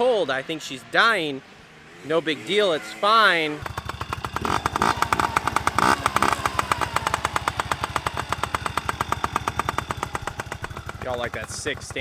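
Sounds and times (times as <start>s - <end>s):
dirt bike engine idling: 3.6s - 12.0s.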